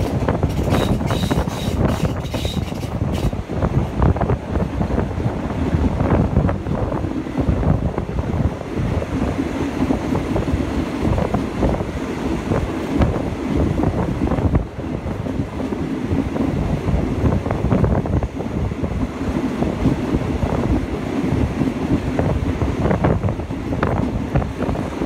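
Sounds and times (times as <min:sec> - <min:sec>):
train wheels and carriage din: 0:00.0 - 0:04.0
wind buffeting the microphone: 0:00.0 - 0:25.0.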